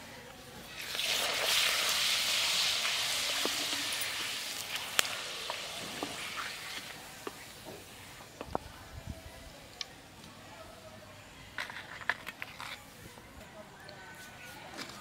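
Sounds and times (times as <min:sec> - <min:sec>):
papad sizzling in hot oil: 0:00.6 - 0:08.2.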